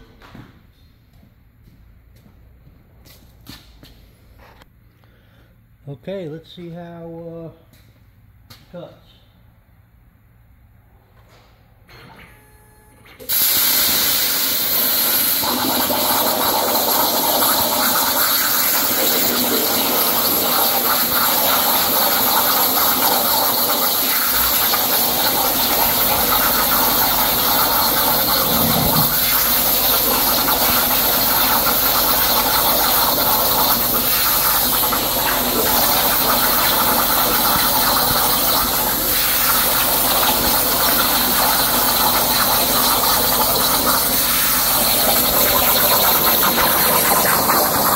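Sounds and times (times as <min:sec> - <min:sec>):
plasma cutter torch hissing: 0:13.3 - 0:15.6.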